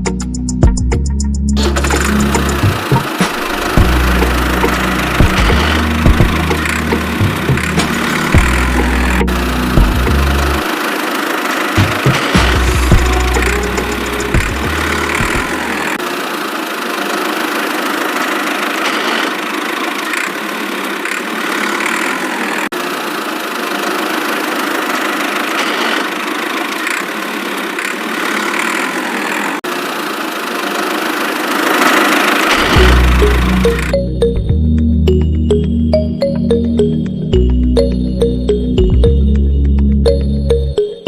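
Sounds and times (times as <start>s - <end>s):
small motor whirring: 1.6s - 33.9s.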